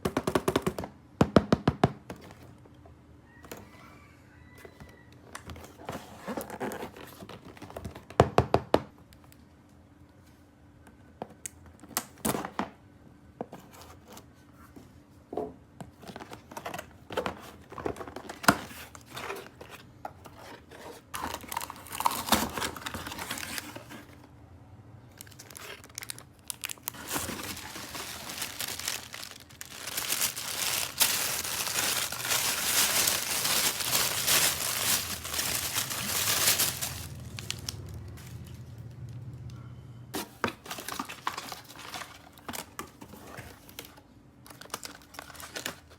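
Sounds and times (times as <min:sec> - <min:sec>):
packaging rustling: 0:16.0 - 0:24.2, 0:25.2 - 0:38.8, 0:40.4 - 0:45.9
wrapping crinkling and tearing: 0:21.1 - 0:24.1, 0:25.2 - 0:38.9, 0:40.6 - 0:45.9.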